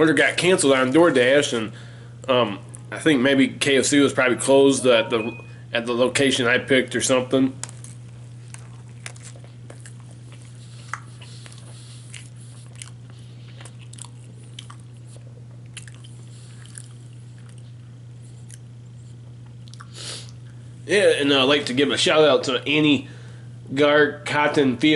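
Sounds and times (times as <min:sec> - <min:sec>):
man chewing food: 0:07.6 - 0:20.6.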